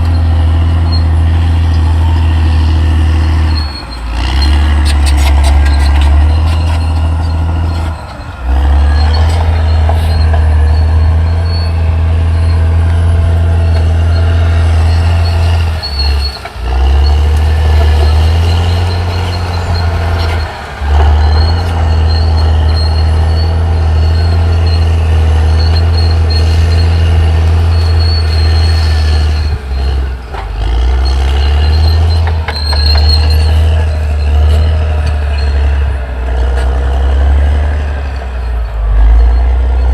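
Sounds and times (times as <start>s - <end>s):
bulldozer diesel engine droning: 0.0s - 39.9s
high squeal from running gear: 0.0s - 39.9s.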